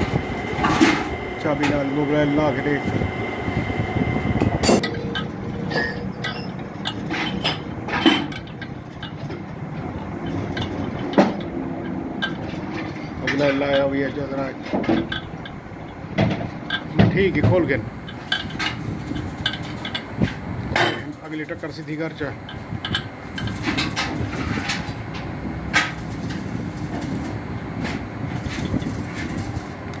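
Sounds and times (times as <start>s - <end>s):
machinery rumbling: 0.0s - 30.0s
steady low hum: 0.0s - 30.0s
sharp metal clank: 4.6s - 8.5s.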